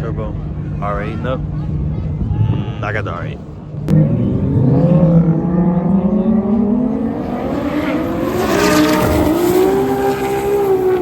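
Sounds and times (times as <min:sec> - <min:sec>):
race car engines accelerating: 0:03.8 - 0:11.0.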